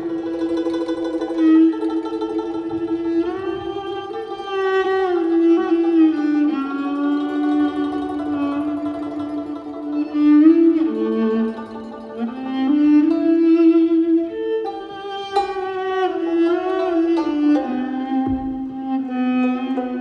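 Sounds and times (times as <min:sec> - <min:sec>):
bowed viola melody: 0:00.0 - 0:20.0.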